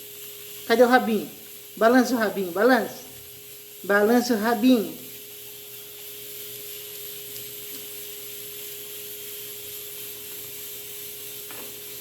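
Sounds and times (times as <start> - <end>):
faint constant hum: 0.0 - 9.2
steady hiss: 0.0 - 12.0.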